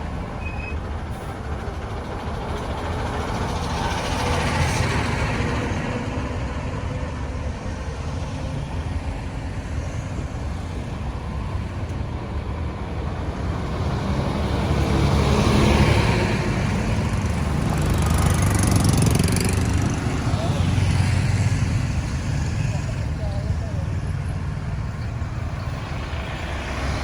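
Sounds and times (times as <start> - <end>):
road traffic passing: 0.0 - 27.0.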